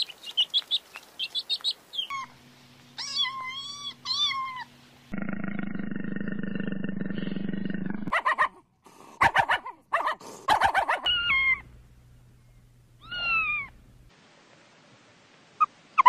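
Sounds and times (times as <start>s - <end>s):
low drone: 2.3s - 8.1s
kittens meowing: 3.0s - 4.7s, 11.0s - 11.6s, 13.0s - 13.8s.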